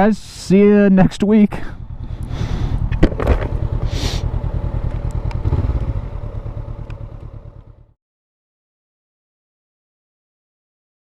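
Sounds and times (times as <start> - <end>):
motorcycle engine running: 1.4 - 8.0.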